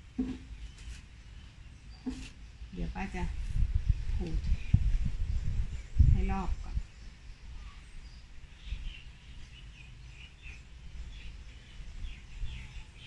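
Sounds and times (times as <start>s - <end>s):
birds chirping: 3.9s - 13.0s.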